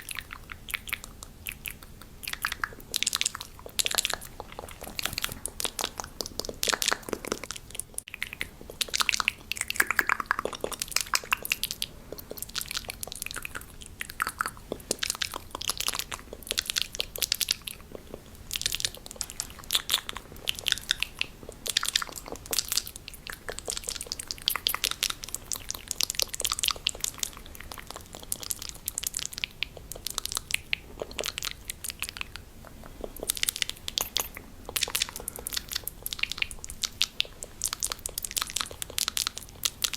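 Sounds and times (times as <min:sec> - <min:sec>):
wet mouth clicks and smacks: 0:20.4 - 0:39.9.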